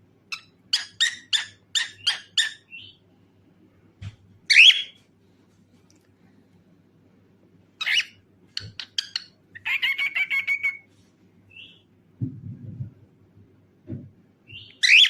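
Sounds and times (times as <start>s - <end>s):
cockatiel chirping: 0.3s - 3.0s, 4.5s - 5.0s, 7.8s - 10.9s, 14.5s - 15.0s.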